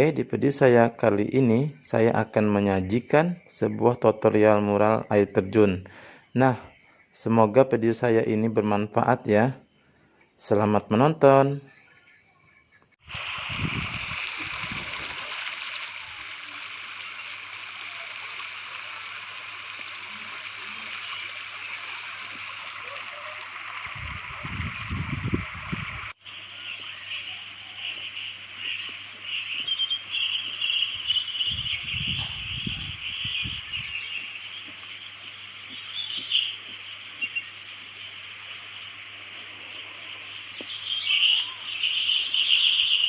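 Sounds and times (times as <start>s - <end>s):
high chirping chorus: 0.0s - 18.2s, 19.8s - 43.0s
water-like hiss: 13.0s - 27.2s.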